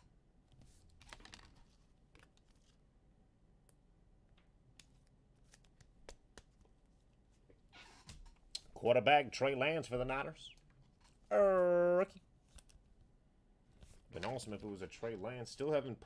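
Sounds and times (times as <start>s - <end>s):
trading cards being handled: 0.6s - 2.9s, 4.4s - 8.7s, 12.4s - 13.1s, 13.7s - 15.3s.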